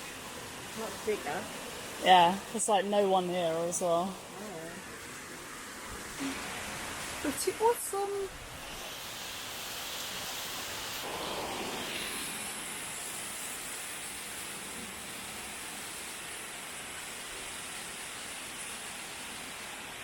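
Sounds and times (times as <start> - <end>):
waterfall rushing: 6.1 - 13.8.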